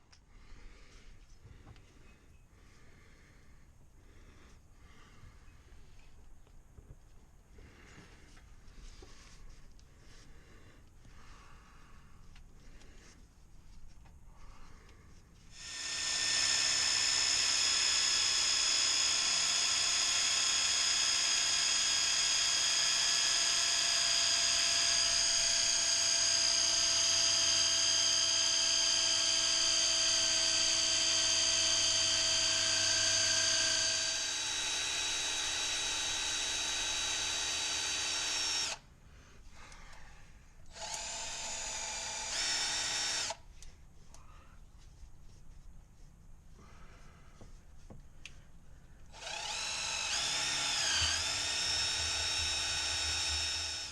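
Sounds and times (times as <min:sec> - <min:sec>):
fluid pump motor whine: 0:49.2 - 0:53.9.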